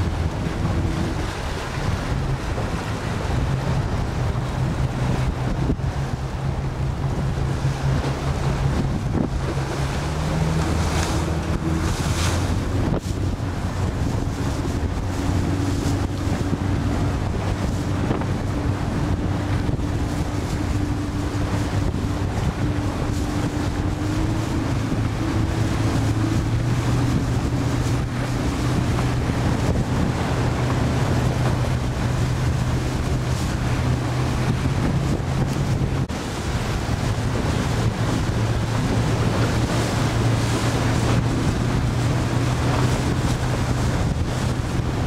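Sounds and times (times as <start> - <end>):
water rushing past hull: 0.0 - 45.0
wind buffeting microphone: 0.0 - 45.0.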